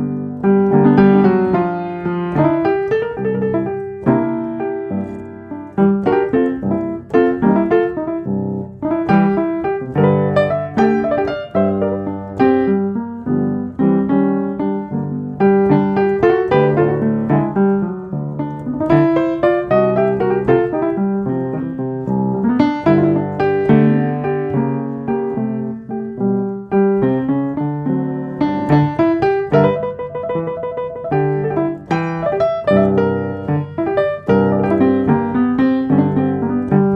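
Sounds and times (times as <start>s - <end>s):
calm solo piano piece: 0.0s - 36.9s.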